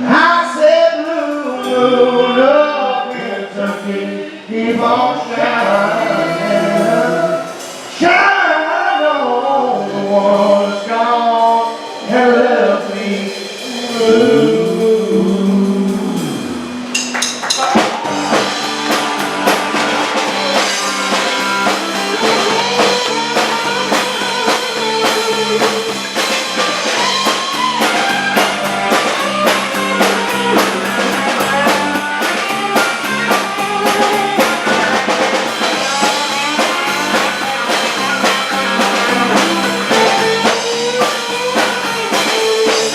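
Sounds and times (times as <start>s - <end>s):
drums keeping steady beat: 0.0s - 8.5s, 9.8s - 42.9s
male voices singing in harmony: 0.0s - 17.0s
live band playing: 0.0s - 42.9s.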